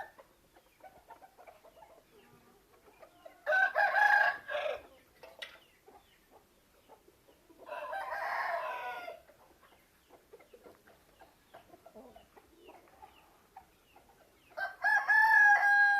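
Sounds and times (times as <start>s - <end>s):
chickens clucking: 0.0s - 15.6s
rooster crowing: 3.4s - 4.8s, 7.7s - 9.2s, 14.6s - 15.9s.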